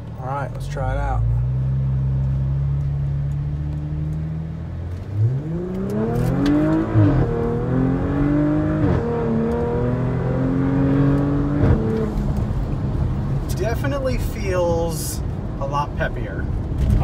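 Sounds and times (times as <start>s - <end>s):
car engine accelerating hard: 0.8s - 13.5s.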